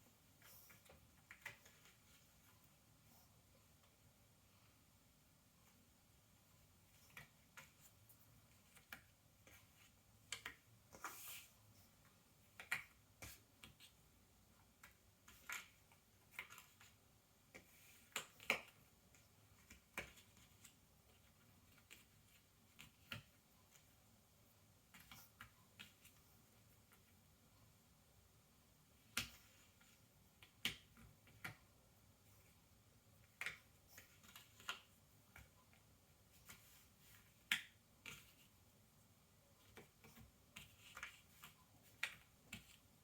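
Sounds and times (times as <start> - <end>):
scraping shuffle of puzzle pieces: 7.0 - 14.0.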